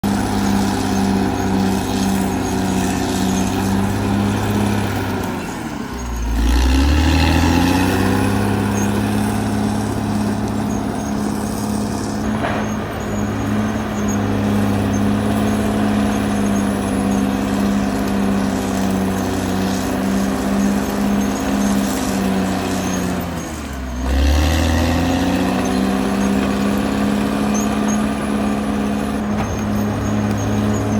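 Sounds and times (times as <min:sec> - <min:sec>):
bulldozer diesel engine under load: 0:00.0 - 0:30.9.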